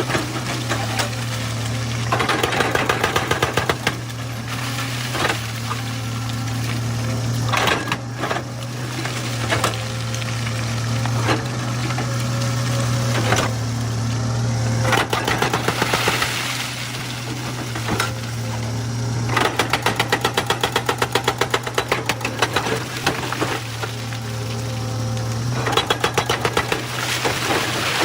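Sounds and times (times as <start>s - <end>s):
knocks and clanks of rock and steel: 0.0s - 4.4s, 7.5s - 9.8s, 14.8s - 16.4s, 19.3s - 24.2s, 25.5s - 28.0s
excavator diesel engine running: 0.0s - 28.0s.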